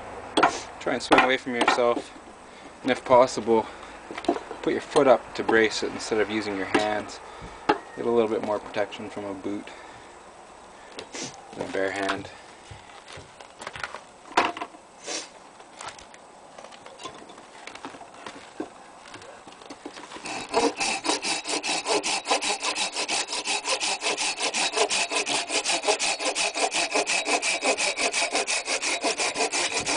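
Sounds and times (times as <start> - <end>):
hand saw cutting a log: 20.1 - 29.9.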